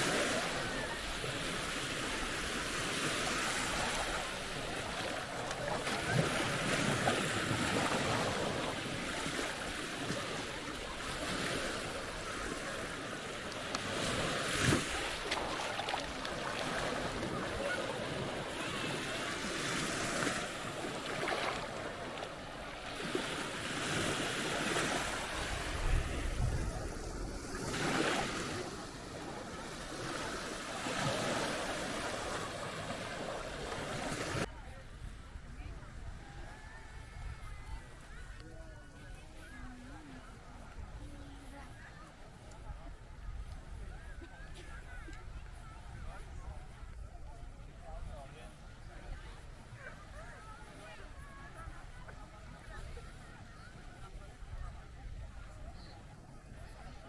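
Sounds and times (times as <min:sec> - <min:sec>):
sea waves breaking on beach: 0:00.0 - 0:34.5
wind: 0:00.0 - 0:57.0.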